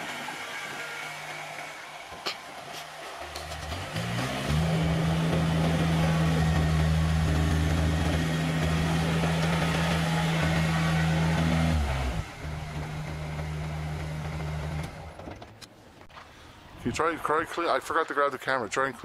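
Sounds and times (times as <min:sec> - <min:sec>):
tractor diesel engine running: 0:00.0 - 0:15.7.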